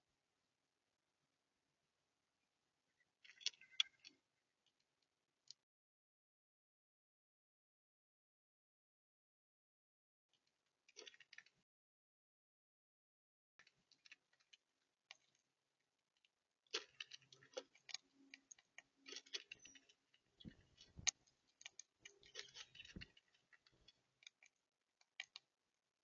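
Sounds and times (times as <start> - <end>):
birds pecking at seed: 16.7 - 25.5.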